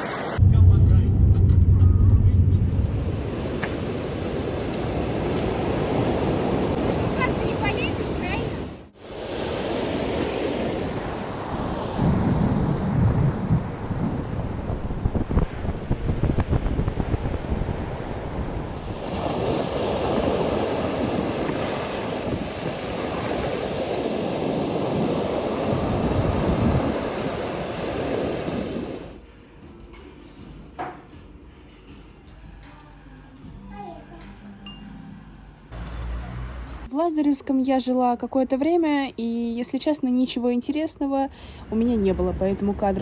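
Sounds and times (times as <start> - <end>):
rushing water: 0.0 - 0.4, 2.6 - 29.2
wind buffeting microphone: 0.4 - 29.2.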